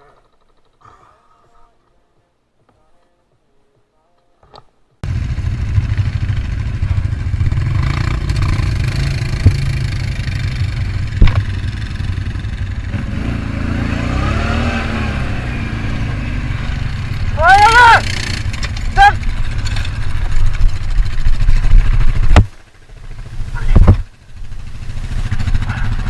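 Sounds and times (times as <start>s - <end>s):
motorcycle engine revving: 5.0s - 26.0s
sharp knocks: 8.3s - 10.1s, 11.0s - 11.8s.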